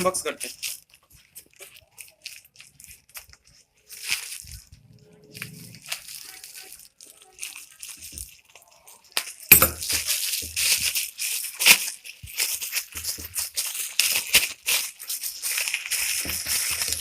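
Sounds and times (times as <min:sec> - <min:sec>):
packaging rustling and scraping: 0:00.0 - 0:17.0.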